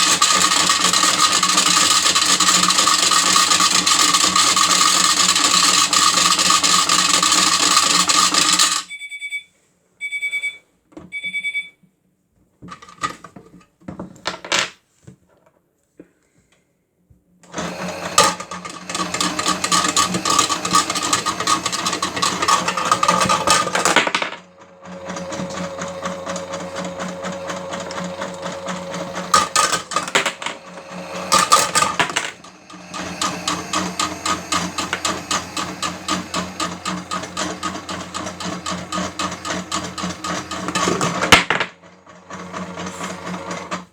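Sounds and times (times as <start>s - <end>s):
batteries rattling in toy drum: 0.0s - 8.9s, 18.1s - 24.4s, 27.8s - 41.9s
short electronic beeps: 8.8s - 11.8s
motor hum: 17.5s - 43.9s.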